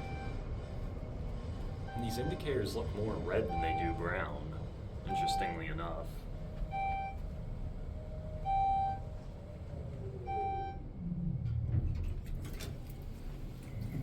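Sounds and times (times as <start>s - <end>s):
elevator floor beep: 0.0s - 0.5s, 1.8s - 11.4s
elevator humming: 0.0s - 14.0s.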